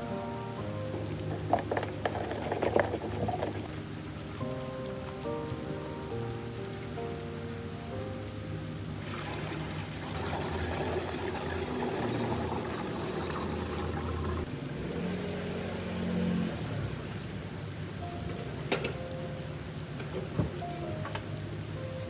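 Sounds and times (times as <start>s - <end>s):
liquid pouring and trickling: 0.8s - 7.6s, 8.3s - 14.5s.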